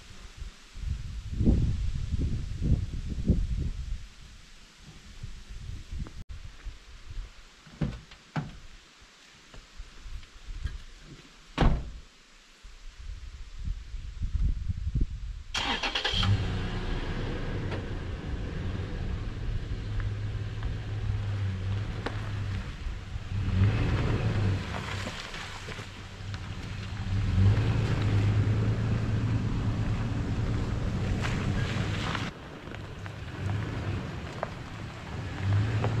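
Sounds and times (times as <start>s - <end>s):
car engine starting and driving off: 15.5s - 36.0s.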